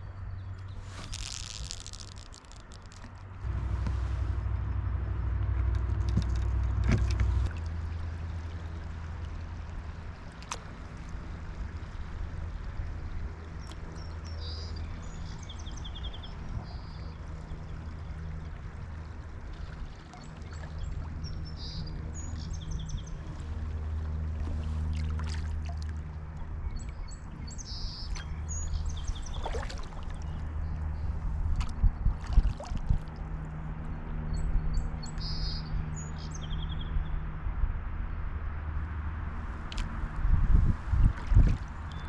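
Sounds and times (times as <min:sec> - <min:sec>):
steady low rumble: 0:00.0 - 0:42.0
water splashing from paddling: 0:00.6 - 0:27.1, 0:27.7 - 0:33.4, 0:40.8 - 0:42.0
birds chirping in trills: 0:26.6 - 0:31.2.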